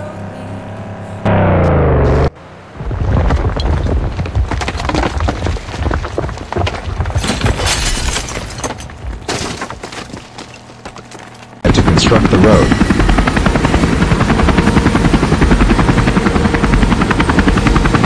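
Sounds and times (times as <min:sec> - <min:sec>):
deep rumble: 0:00.0 - 0:09.3
rocks cracking and crumbling: 0:02.7 - 0:11.6.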